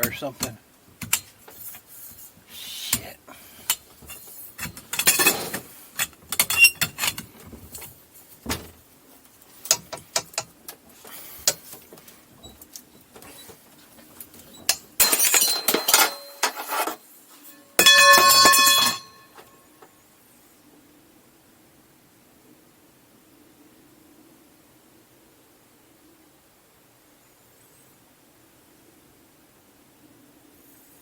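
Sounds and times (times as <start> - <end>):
metal tools clinking: 3.6 - 7.3, 14.4 - 19.5.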